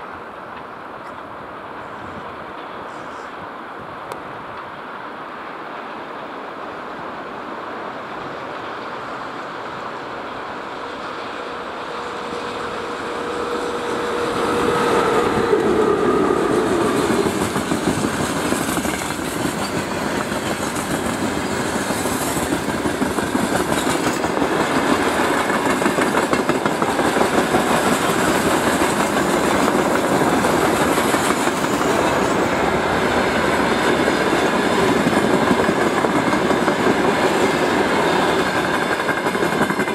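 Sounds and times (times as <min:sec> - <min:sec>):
electric locomotive passing: 0:00.0 - 0:39.9
train wheels clacking over rail joints: 0:11.0 - 0:32.4, 0:33.4 - 0:39.9.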